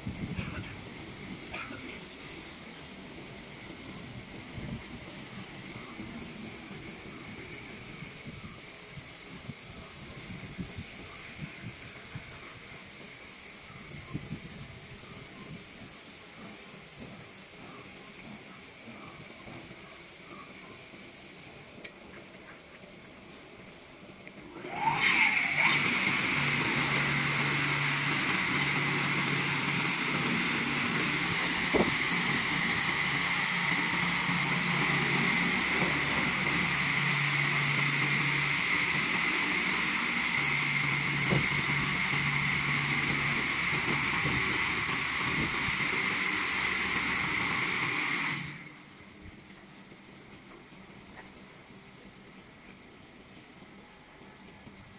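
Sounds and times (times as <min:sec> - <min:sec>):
car wash water rushing: 0:24.6 - 0:48.8.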